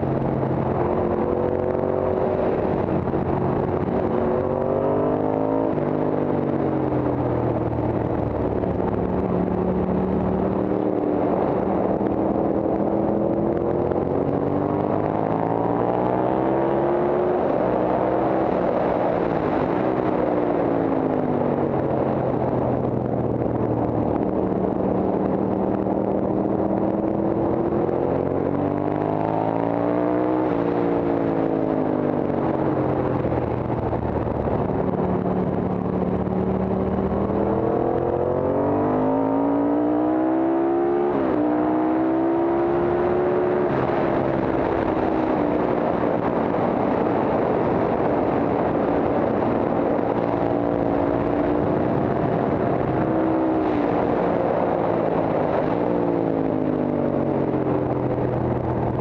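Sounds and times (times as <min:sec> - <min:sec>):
racing motorcycle engine revving: 0:00.0 - 0:59.0.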